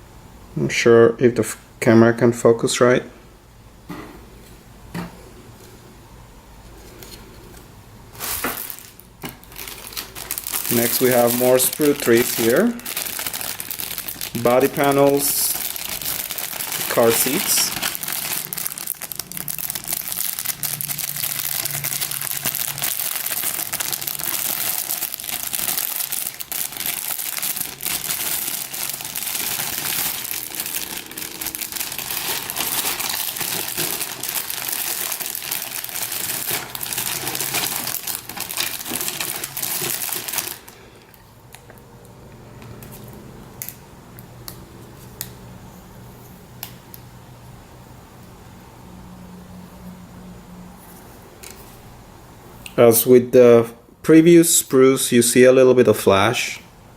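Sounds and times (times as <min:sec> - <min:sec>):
packaging crinkling: 0:08.1 - 0:41.7.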